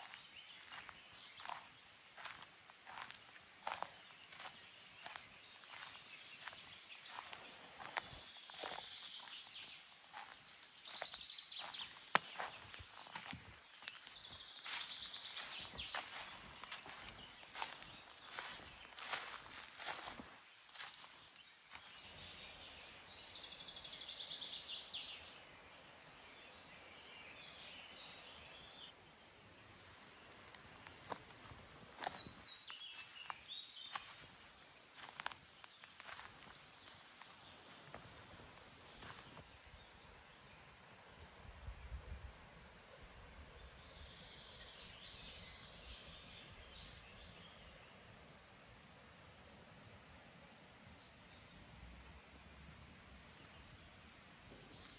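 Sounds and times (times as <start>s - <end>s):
birds chirping: 0.0s - 22.1s, 30.4s - 38.1s.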